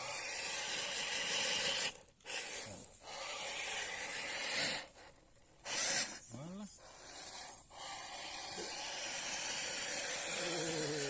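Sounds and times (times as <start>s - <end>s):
toy car electric motor and gears: 0.0s - 11.0s.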